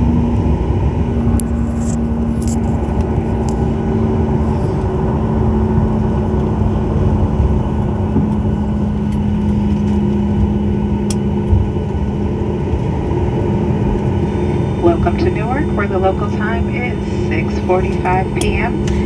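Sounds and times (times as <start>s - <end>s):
aircraft engine and airflow rumble: 0.0s - 19.0s
steady hum: 11.7s - 19.0s.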